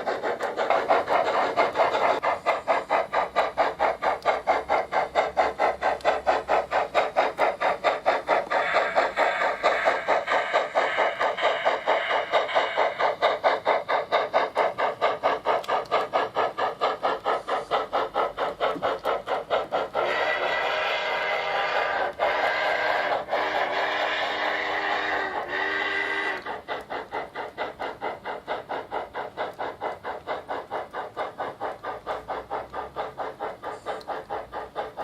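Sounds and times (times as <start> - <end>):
model locomotive steam chuffing: 0.0 - 35.0
steady steam hiss: 0.0 - 35.0.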